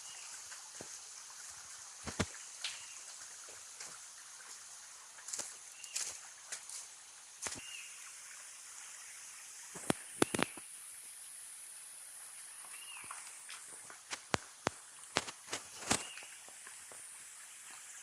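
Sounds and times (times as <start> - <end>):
footsteps on rough ground: 0.8 - 2.4, 5.3 - 7.7, 13.5 - 16.3
bird chirp: 15.8 - 16.4.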